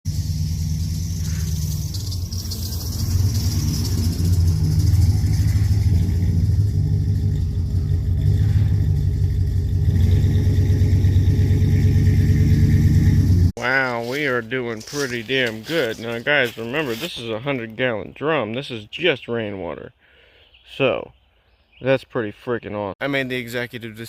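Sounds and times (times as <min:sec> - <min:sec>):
engine rumbling steadily: 0:00.0 - 0:17.5.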